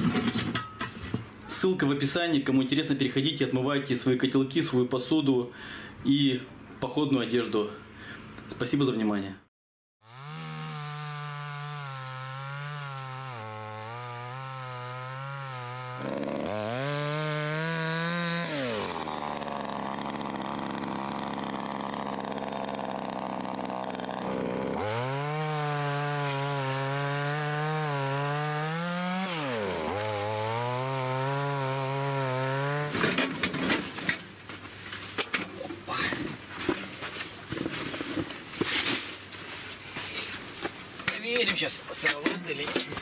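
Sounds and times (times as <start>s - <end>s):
chainsaw cutting log: 10.0s - 34.2s.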